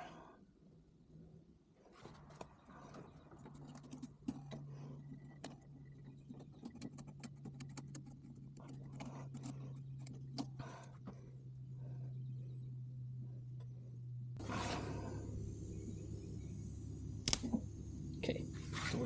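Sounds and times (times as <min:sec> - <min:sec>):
low electrical hum: 0:00.0 - 0:19.0
sharp click: 0:17.2 - 0:17.6.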